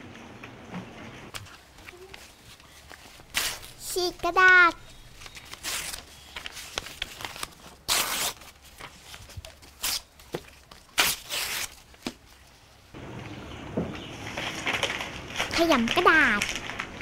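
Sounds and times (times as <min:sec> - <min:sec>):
paper tearing: 0:02.9 - 0:03.9, 0:05.0 - 0:10.1, 0:10.8 - 0:12.0.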